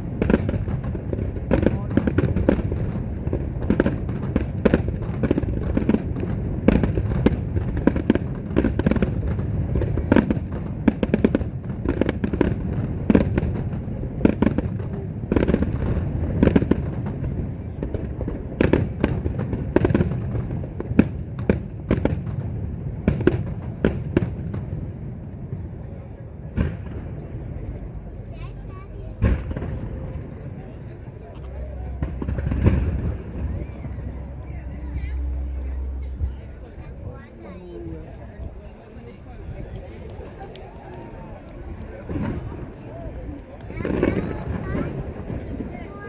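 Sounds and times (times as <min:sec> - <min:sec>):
fireworks bangs and crackles: 0:00.0 - 0:46.0
low rumble: 0:24.6 - 0:40.2.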